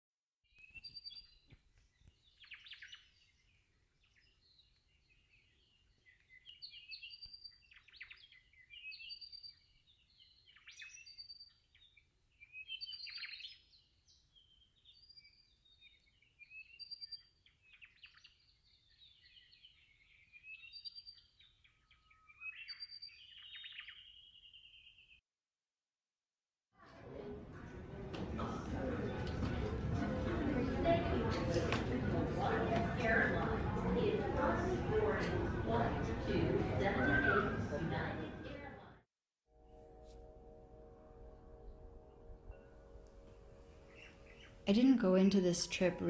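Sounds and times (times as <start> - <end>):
birds chirping and singing: 0.5 - 25.2, 43.3 - 46.0.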